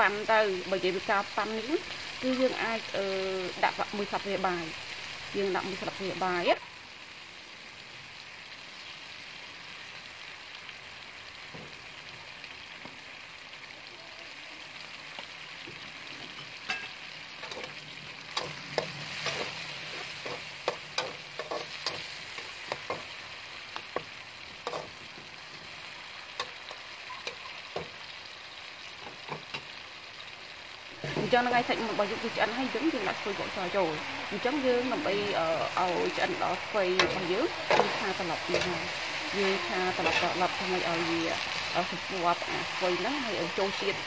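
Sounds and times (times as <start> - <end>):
chicken sizzling in oil: 0.0 - 44.0
spatula clacking against wok: 20.2 - 23.1.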